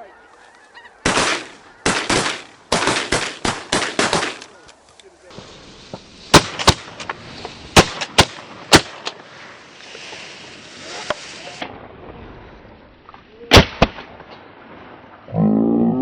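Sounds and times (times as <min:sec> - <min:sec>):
shotgun shots: 0:01.0 - 0:04.6, 0:06.3 - 0:07.2, 0:07.8 - 0:09.2, 0:13.5 - 0:14.3.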